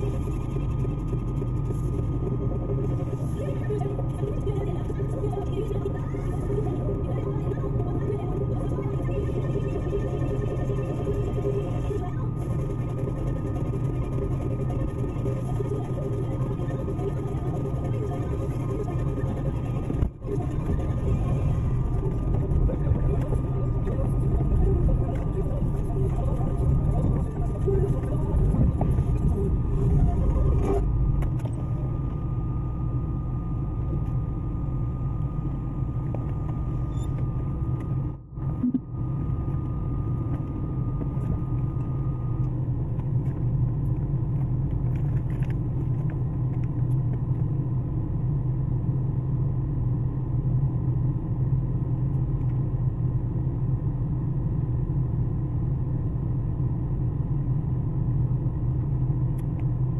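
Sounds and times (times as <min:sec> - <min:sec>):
faint thin whine: 0:00.0 - 0:55.1.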